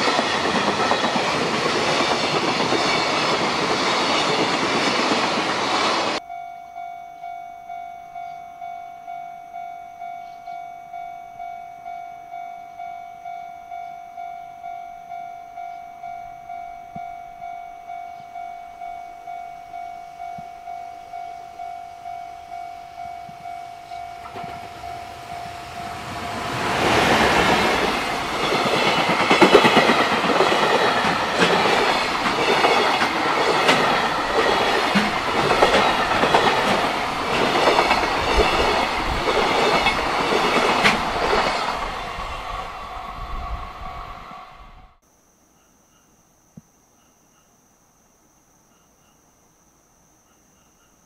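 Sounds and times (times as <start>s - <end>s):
freight train passing: 0.0s - 6.2s, 21.1s - 45.0s
wheels clacking over rail joints: 0.0s - 6.2s, 24.2s - 42.0s
level-crossing warning bell: 0.0s - 41.9s.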